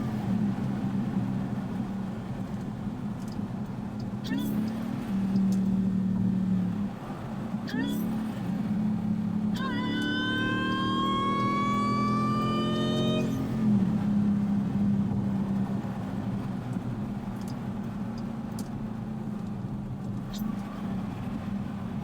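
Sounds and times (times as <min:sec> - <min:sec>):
engine low drone: 0:00.0 - 0:22.0
supercharger whine rising: 0:09.6 - 0:14.0.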